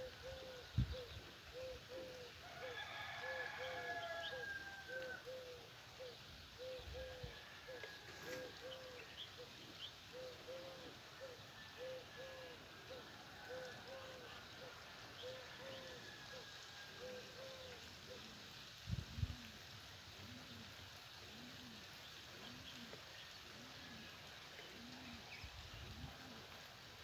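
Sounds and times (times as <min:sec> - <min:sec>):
rooster crowing: 0:02.4 - 0:05.4, 0:07.0 - 0:09.1, 0:11.4 - 0:17.4.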